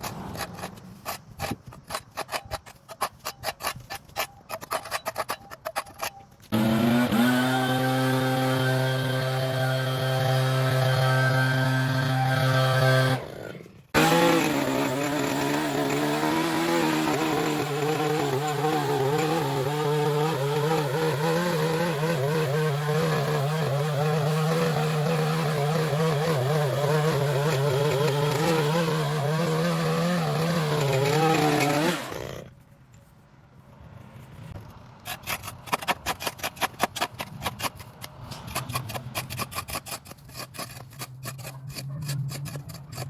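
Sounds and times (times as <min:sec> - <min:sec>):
small gasoline engine running: 0:06.5 - 0:32.3.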